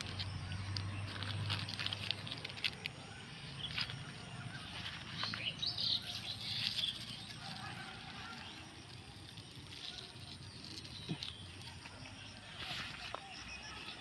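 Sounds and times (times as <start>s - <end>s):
handling noise clicks and rustles: 0.0s - 3.0s
small birds chirping: 0.0s - 14.0s.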